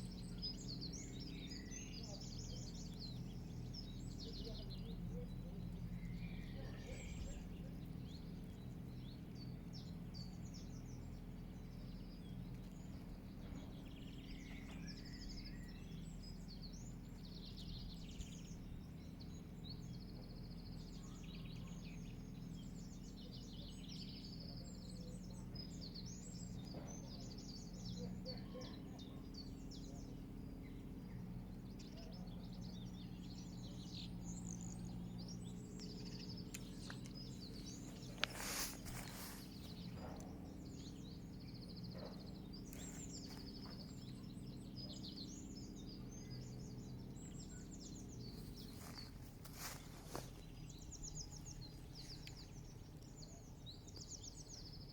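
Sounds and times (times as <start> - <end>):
low background rumble: 0.0 - 54.9
songbirds chirping and trilling: 0.0 - 54.9.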